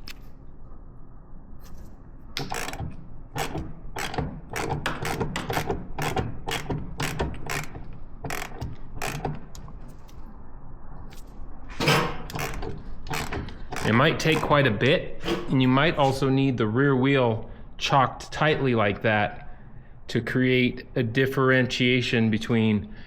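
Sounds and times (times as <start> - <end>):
jack ratcheting metal clicks: 2.4 - 10.2, 11.8 - 15.5.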